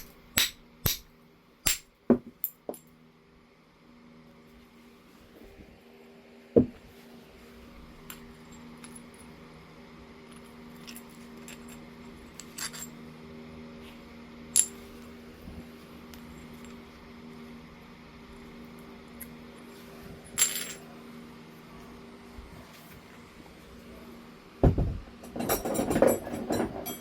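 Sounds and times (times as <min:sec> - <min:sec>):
tool clicking on stone: 0:00.0 - 0:01.9.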